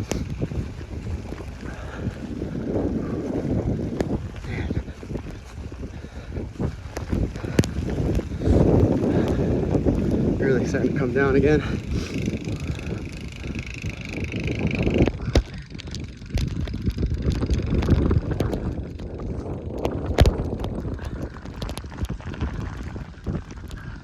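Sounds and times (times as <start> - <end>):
footsteps in deep snow: 0.0 - 10.6
wind buffeting microphone: 0.0 - 24.0.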